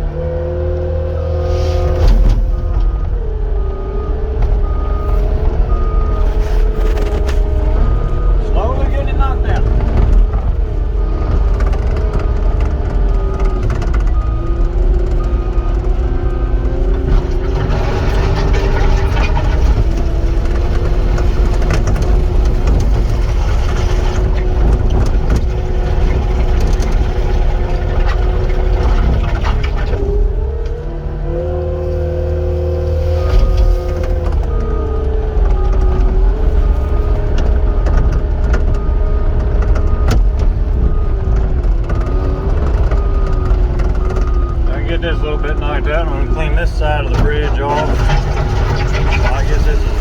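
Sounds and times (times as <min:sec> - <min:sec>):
skid steer diesel engine revving: 0:00.0 - 0:50.0
reverse alarm beeping: 0:00.6 - 0:10.4, 0:41.9 - 0:50.0.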